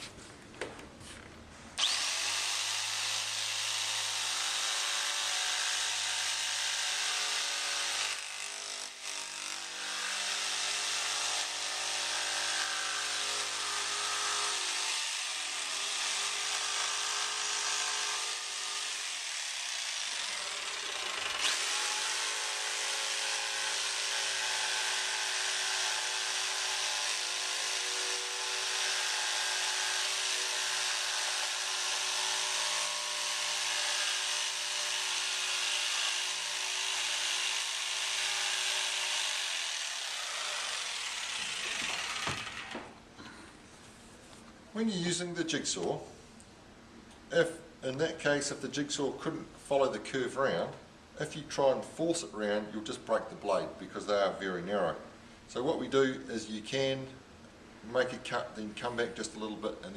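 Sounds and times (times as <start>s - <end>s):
jigsaw cutting board: 1.8s - 43.0s.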